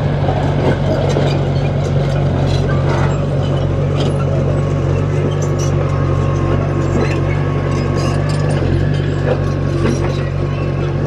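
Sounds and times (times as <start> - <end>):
diesel engine under load: 0.0 - 11.0
metallic clinks and rattles: 5.1 - 10.6.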